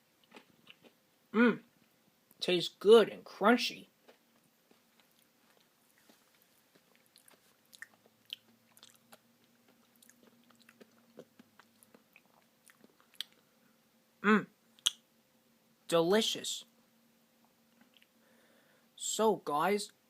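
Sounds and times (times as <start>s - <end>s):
chewing and crunching: 0.1s - 1.0s, 4.0s - 13.6s.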